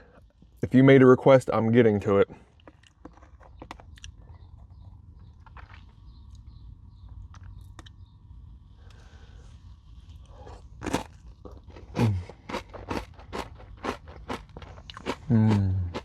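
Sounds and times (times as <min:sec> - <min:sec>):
crunchy bar chewing: 0:02.5 - 0:04.7, 0:05.3 - 0:06.4, 0:10.1 - 0:16.0.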